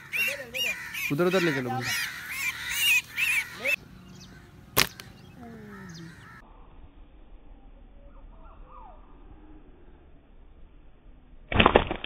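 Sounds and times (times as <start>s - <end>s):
harsh bird calls: 0.0s - 6.5s
sharp crack: 4.7s - 5.2s, 11.5s - 12.0s.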